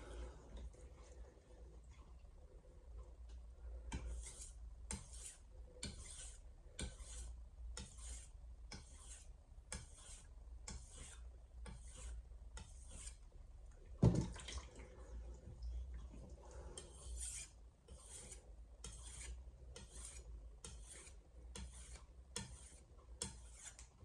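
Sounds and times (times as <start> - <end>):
knife blade scraping on whetstone: 3.9 - 13.2, 16.8 - 23.9.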